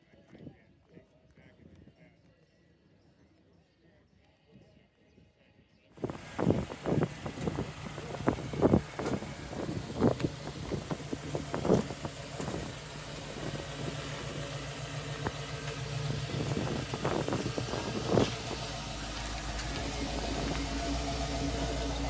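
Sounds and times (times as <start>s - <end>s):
car engine idling: 6.0s - 22.0s.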